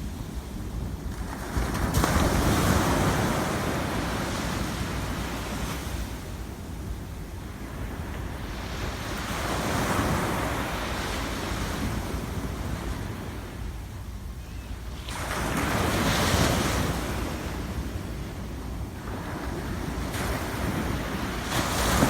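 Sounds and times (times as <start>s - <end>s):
wind rumble on microphone: 0.0s - 22.0s
sea waves breaking: 19.1s - 22.0s.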